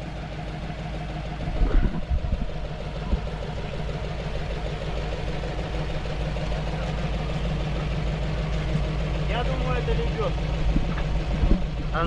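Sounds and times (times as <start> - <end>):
truck engine idling: 0.0 - 12.0
low thumps: 10.6 - 11.8.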